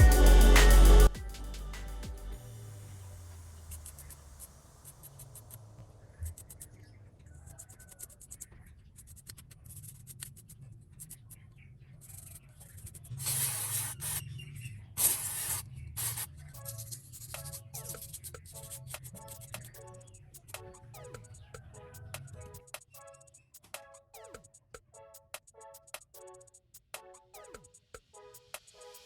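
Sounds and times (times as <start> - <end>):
scraping and clicking on phone: 7.4 - 14.3, 15.0 - 19.8
short hissing bursts: 13.2 - 14.2, 15.0 - 16.3
faint background music: 16.0 - 29.0.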